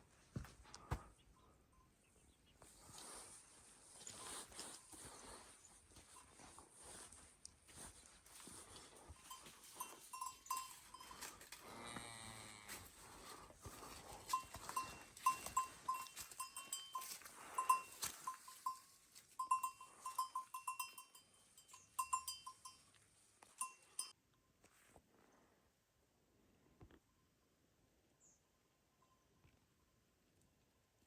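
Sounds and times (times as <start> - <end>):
livestock bell clinking: 8.3 - 12.0, 13.0 - 24.2, 28.9 - 29.5.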